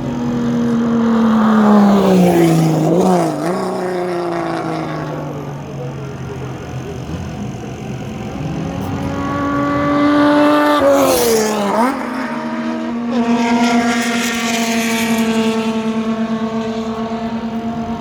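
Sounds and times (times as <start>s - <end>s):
race car passing at full throttle: 0.0s - 18.0s.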